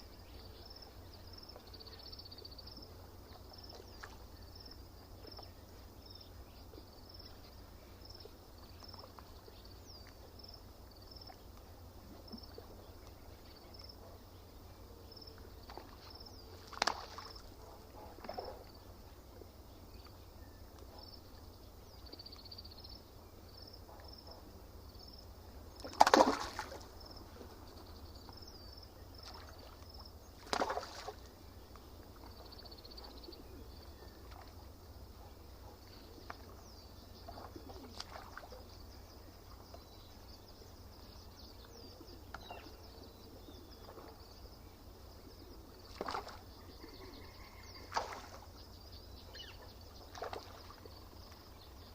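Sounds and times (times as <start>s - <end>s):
steady low hum: 0.0s - 51.9s
water splashing at shore: 15.6s - 17.5s, 25.8s - 27.5s, 29.2s - 31.4s, 37.2s - 38.6s, 45.9s - 46.5s, 47.8s - 48.5s, 50.0s - 51.5s
birds calling: 25.4s - 51.9s.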